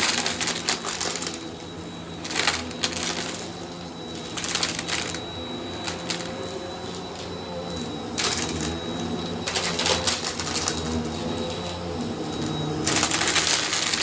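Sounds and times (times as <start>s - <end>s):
vacuum cleaner motor humming: 0.0s - 14.0s
debris rattling through vacuum: 12.4s - 14.0s.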